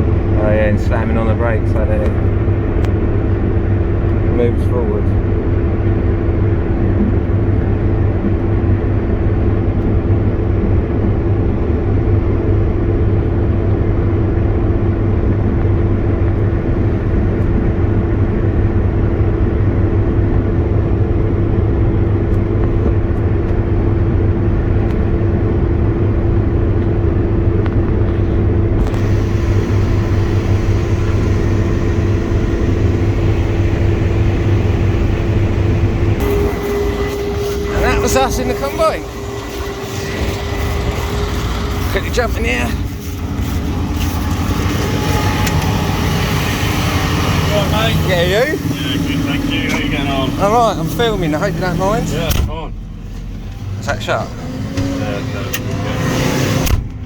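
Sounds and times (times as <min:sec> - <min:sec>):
loud engine drone: 0:00.0 - 0:57.0
hiss: 0:28.9 - 0:34.8.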